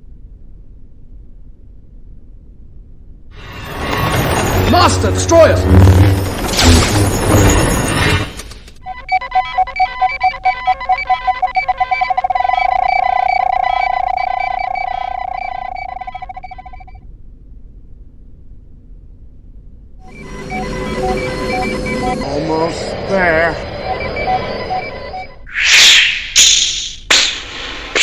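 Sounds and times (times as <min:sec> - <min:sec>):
loud dense burst: 0:03.4 - 0:08.3
electronic beeps speeding up: 0:08.8 - 0:17.0, 0:20.1 - 0:26.4.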